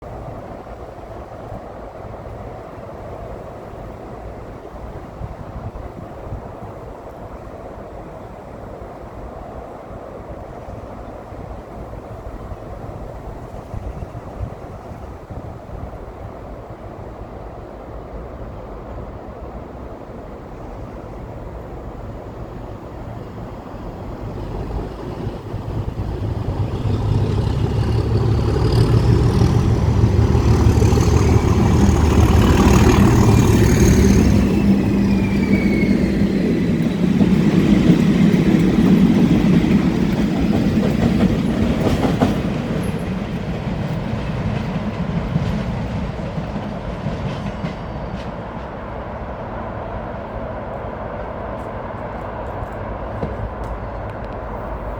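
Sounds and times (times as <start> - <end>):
diesel locomotive engine under power: 17.8 - 54.9
train wheels clicking over rail joints: 22.9 - 49.5.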